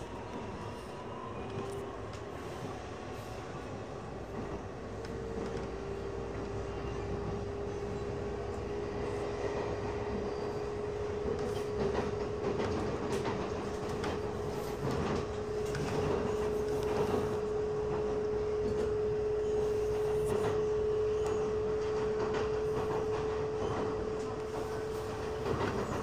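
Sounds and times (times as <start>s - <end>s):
train rumbling on track: 0.0s - 26.0s.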